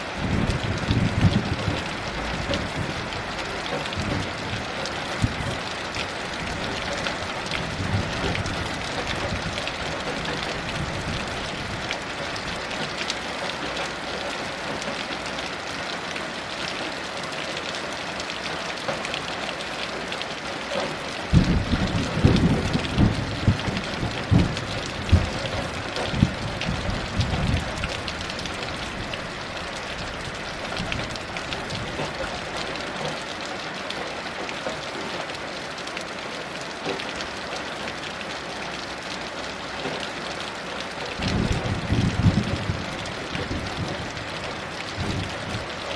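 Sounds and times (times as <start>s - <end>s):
thunder rumbling: 0.0s - 5.6s, 21.3s - 32.1s, 41.2s - 45.9s
heavy rain falling: 0.0s - 45.9s.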